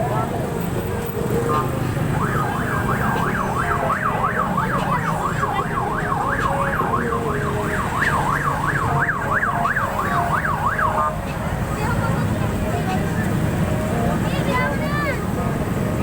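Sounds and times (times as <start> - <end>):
low traffic rumble: 0.0 - 16.0
emergency siren yelping: 0.1 - 11.8.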